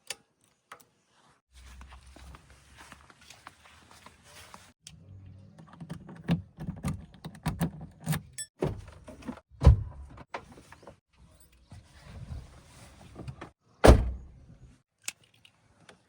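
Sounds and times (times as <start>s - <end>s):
knocks and clunks: 13.1s - 14.4s.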